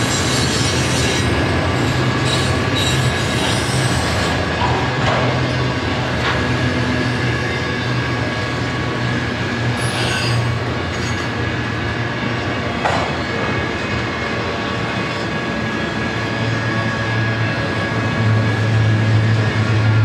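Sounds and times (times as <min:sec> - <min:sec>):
thin wheel squeal: 0:00.0 - 0:04.4, 0:09.8 - 0:10.6
steel wheels rumbling on rail: 0:00.0 - 0:20.0.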